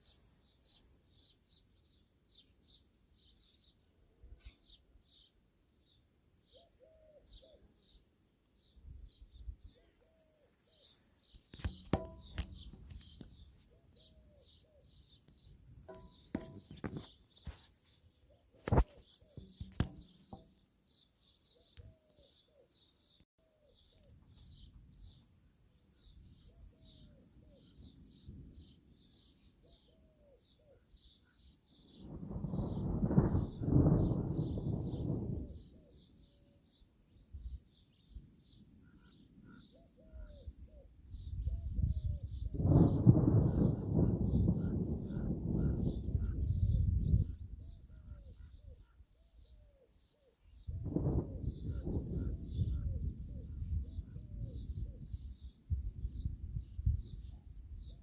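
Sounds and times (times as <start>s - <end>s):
birds chirping: 4.3s - 56.4s
lower falling bird call: 9.3s - 25.2s, 29.6s - 36.7s, 38.9s - 49.6s, 50.6s - 56.1s
sharp knocks: 11.6s - 12.8s, 15.9s - 17.1s.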